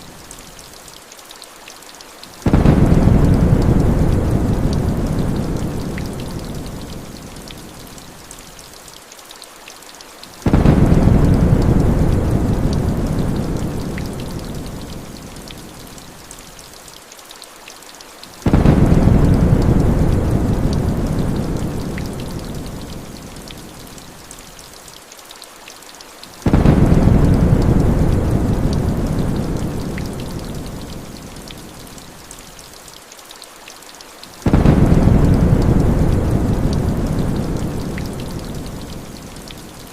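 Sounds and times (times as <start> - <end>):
rain: 0.0 - 39.9
thunder rumbling: 2.4 - 7.0, 10.5 - 14.9, 18.5 - 22.9, 26.4 - 31.1, 34.4 - 39.0.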